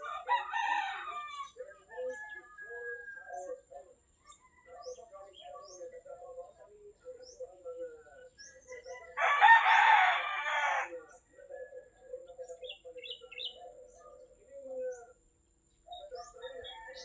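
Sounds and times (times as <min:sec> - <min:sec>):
rooster crowing: 0:00.0 - 0:03.5, 0:09.1 - 0:11.0, 0:16.5 - 0:17.0
small birds chirping: 0:00.0 - 0:17.0.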